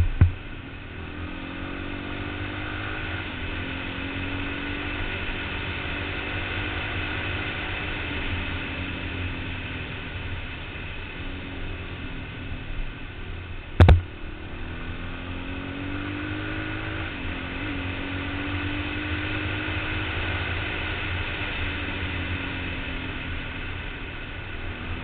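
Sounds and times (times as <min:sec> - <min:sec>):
loud knock: 0:00.0 - 0:00.4, 0:13.8 - 0:14.0
motorcycle engine running: 0:00.0 - 0:25.0.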